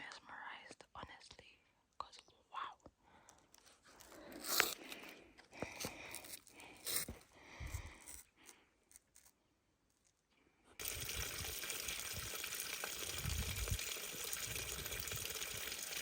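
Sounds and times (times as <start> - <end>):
flowing water rushing: 10.8 - 16.0.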